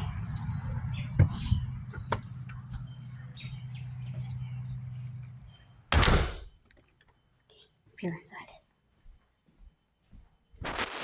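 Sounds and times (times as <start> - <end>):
birds chirping: 0.0 - 6.1
loud rush of noise: 10.6 - 11.0.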